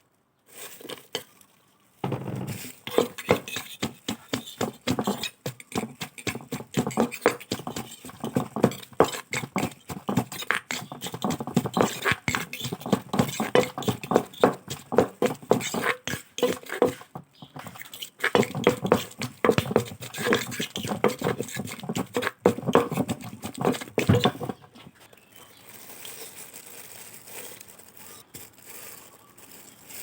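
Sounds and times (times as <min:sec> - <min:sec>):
pestle pounding in a mortar: 0:02.0 - 0:24.9.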